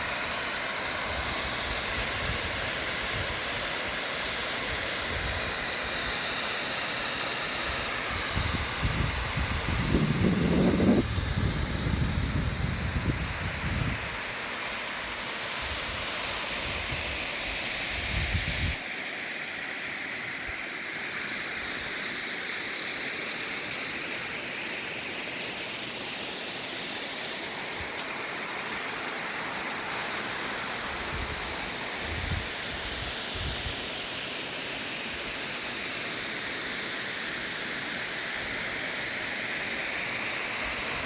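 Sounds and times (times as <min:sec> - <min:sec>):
small waterfall splashing: 0:00.0 - 0:09.8, 0:18.8 - 0:41.0
wind rumbling on microphone: 0:08.3 - 0:14.2, 0:17.9 - 0:18.8, 0:31.1 - 0:33.8.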